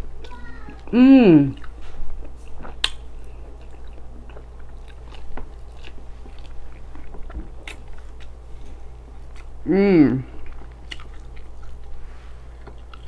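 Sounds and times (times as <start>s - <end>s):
chewing with crunchy clicks: 1.5s - 9.6s, 10.2s - 13.0s.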